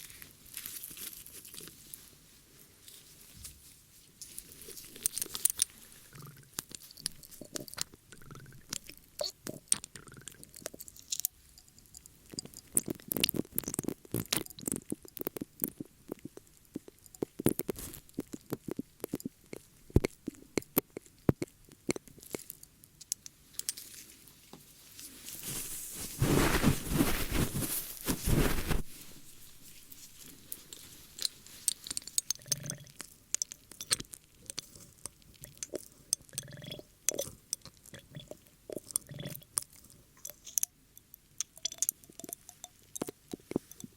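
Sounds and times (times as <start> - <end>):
ear cleaning clicks and scrapes: 12.3 - 23.8, 25.0 - 35.8
rubbing: 24.9 - 31.8.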